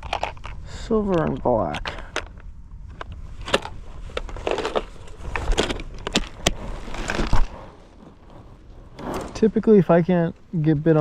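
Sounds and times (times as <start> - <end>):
rustling: 2.9 - 11.0
low rumble: 4.9 - 10.6.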